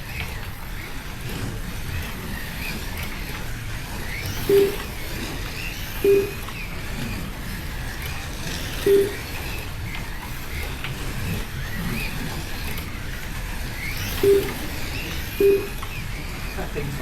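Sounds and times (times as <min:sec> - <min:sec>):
electric motors whining: 0:00.0 - 0:17.0
slot cars rumbling on track: 0:00.0 - 0:17.0
short beeps: 0:04.5 - 0:04.9, 0:06.0 - 0:06.4, 0:08.9 - 0:09.3, 0:14.2 - 0:14.6, 0:15.4 - 0:15.8.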